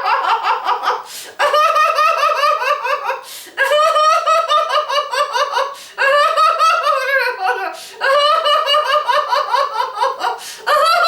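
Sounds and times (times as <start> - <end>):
woman laughing heartily: 0.0 - 11.0
sharp gasping breaths: 1.1 - 1.4, 3.2 - 3.6, 5.8 - 6.0, 7.8 - 8.0, 10.4 - 10.7.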